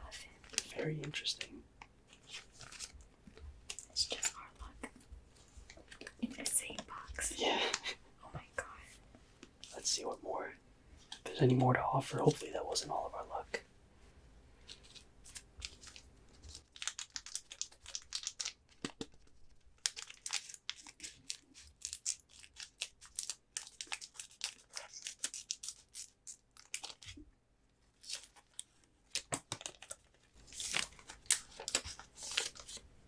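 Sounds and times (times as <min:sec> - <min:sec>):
foil wrapper crinkling and tearing: 0:14.7 - 0:27.2, 0:28.0 - 0:32.8.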